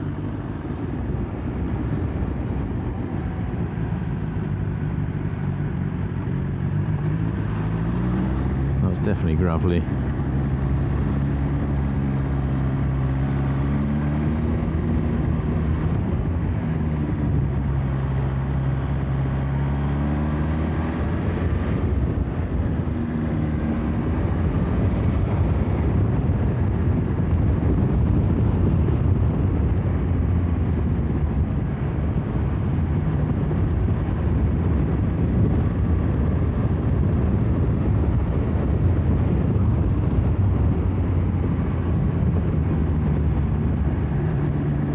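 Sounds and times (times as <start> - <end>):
wind and road noise: 0.0 - 44.9
motorcycle engine running: 21.0 - 44.9.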